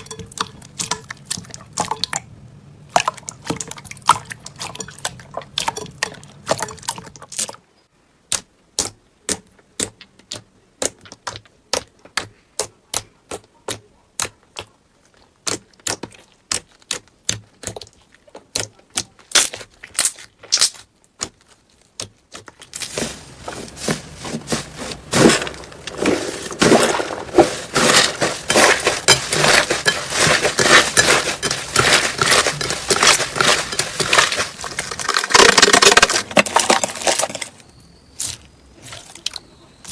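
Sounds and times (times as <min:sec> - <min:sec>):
slime popping and crackling: 0:15.4 - 0:37.6.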